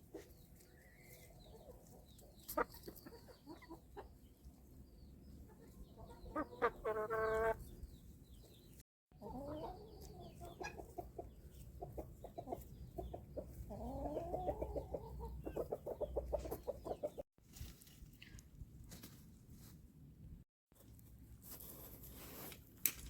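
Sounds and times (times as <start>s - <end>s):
chickens clucking: 0.0s - 17.2s.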